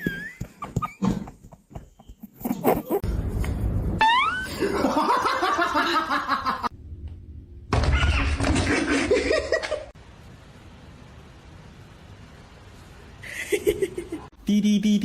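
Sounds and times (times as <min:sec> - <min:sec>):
people laughing: 0:04.4 - 0:06.7.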